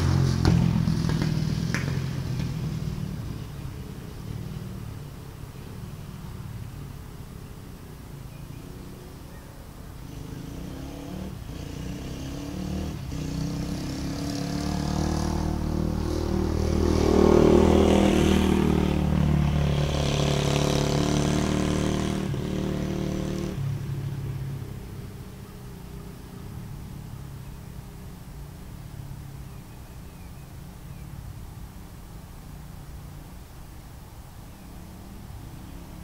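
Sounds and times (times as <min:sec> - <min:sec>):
dirt bike engine running: 0:00.0 - 0:09.4.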